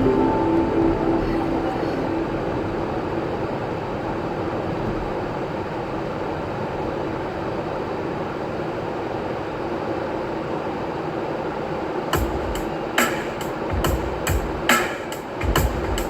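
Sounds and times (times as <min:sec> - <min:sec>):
music track: 0:00.0 - 0:04.6.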